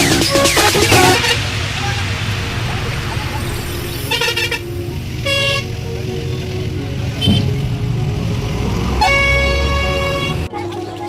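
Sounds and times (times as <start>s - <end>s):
engine rumbling: 0.0s - 10.5s
truck horn honking: 0.2s - 1.8s, 4.1s - 10.5s.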